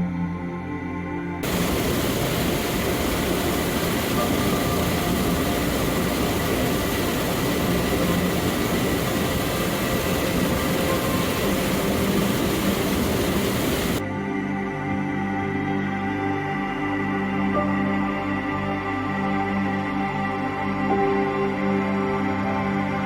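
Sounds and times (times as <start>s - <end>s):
soft ambient music: 0.0s - 23.0s
waterfall roaring: 1.4s - 14.0s.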